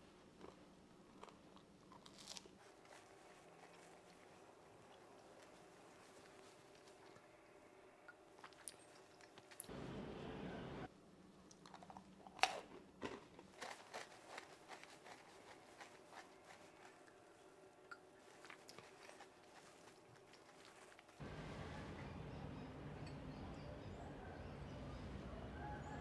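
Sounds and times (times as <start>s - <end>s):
crunching of a crisp snack: 0.4s - 4.2s, 11.6s - 17.1s.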